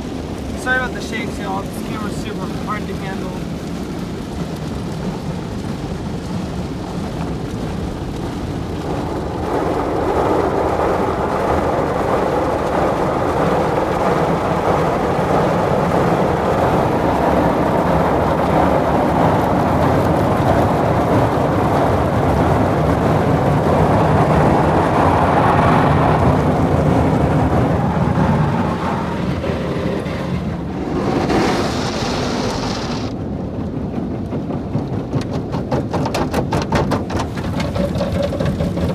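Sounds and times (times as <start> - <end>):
spraying water: 0.0 - 11.2, 12.5 - 33.2
car wash brushes scrubbing: 25.6 - 33.1.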